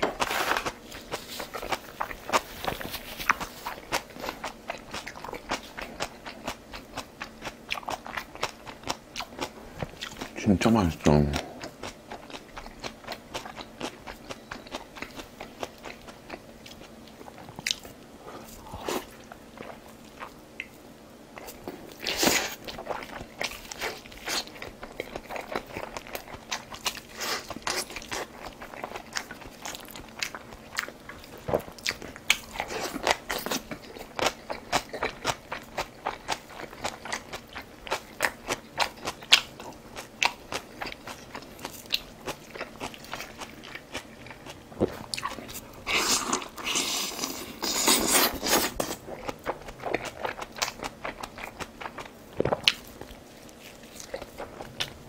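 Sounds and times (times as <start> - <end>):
person biting and chewing food: 0.0 - 10.4, 21.4 - 55.0.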